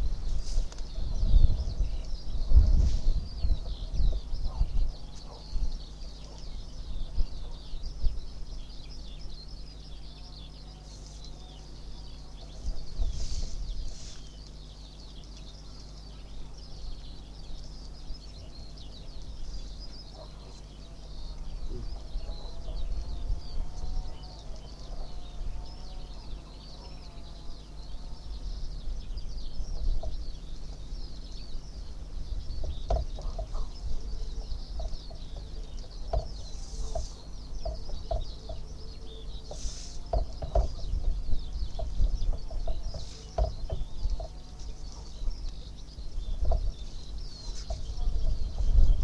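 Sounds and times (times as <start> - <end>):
lower wavering bird calls: 0.0 - 49.0
short repeated bird calls: 39.3 - 40.7.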